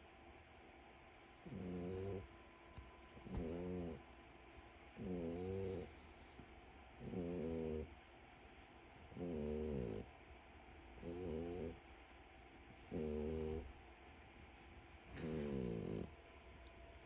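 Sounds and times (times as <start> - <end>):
dog snoring: 1.4 - 2.3, 3.2 - 4.0, 5.0 - 8.0, 9.0 - 10.1, 10.9 - 11.8, 12.7 - 13.8, 15.1 - 16.2.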